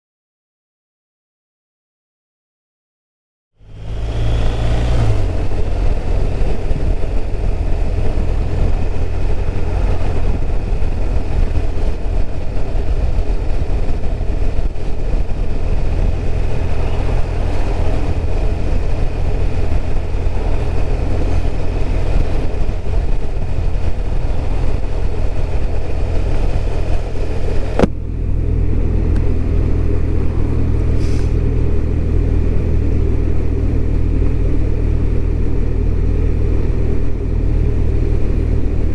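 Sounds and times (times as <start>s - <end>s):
motorcycle engine and road rumble: 3.6s - 38.9s
wind hiss: 29.8s - 31.9s.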